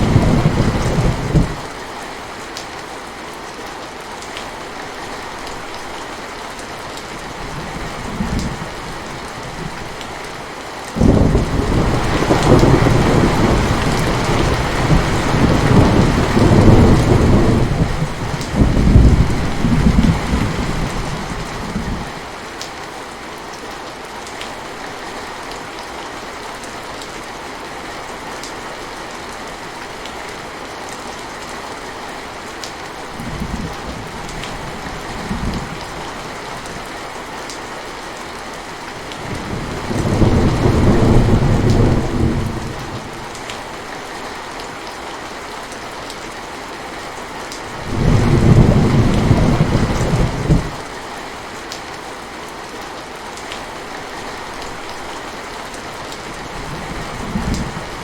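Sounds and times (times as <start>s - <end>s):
thunder rumbling: 0.0s - 1.7s, 11.0s - 22.1s, 39.2s - 43.3s, 47.8s - 50.9s, 56.4s - 58.0s
steady rain: 0.0s - 58.0s.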